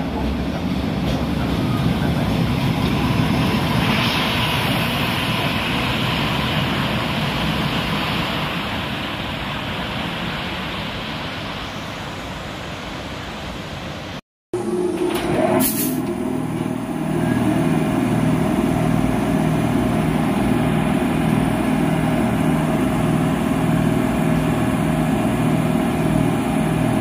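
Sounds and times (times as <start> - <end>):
train wheels rumbling: 0.0 - 11.1.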